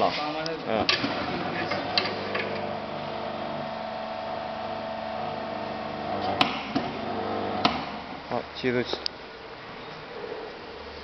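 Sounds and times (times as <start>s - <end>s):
electric motor humming: 1.5s - 7.8s.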